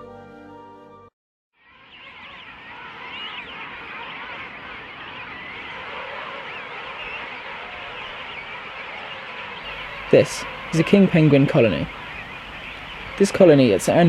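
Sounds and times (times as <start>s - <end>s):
penguin colony calling: 1.6s - 14.0s.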